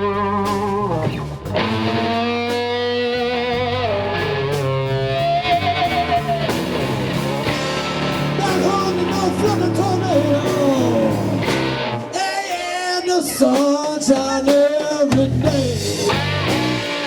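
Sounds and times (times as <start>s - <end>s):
electric guitar lead: 0.0s - 13.8s, 15.2s - 17.0s
blues band playing: 0.0s - 17.0s
person singing: 8.1s - 16.2s.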